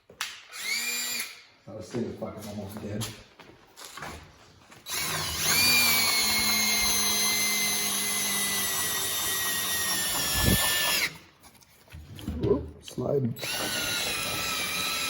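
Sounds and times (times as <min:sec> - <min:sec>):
cordless drill whining: 0:00.5 - 0:01.5, 0:04.8 - 0:11.3, 0:13.4 - 0:15.0.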